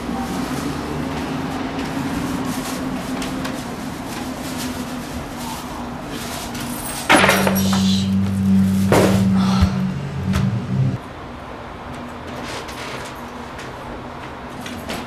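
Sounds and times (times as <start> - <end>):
low background hum: 7.1 - 11.0
loud film soundtrack music: 7.8 - 11.0.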